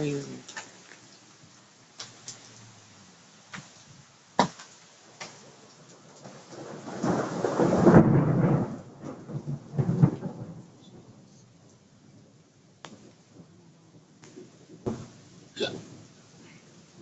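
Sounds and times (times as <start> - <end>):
faint rain hiss: 0.0 - 17.0
thunder rumbling: 5.0 - 17.0.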